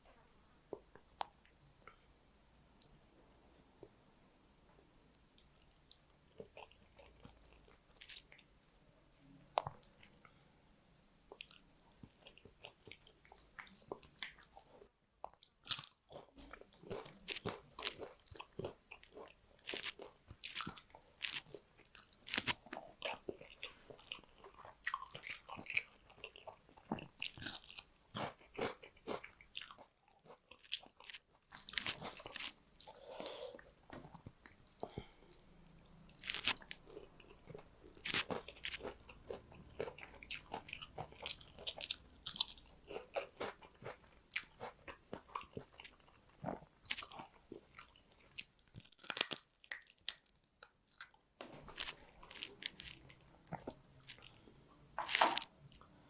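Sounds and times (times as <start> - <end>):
wet chewing with crunches: 11.3 - 55.9.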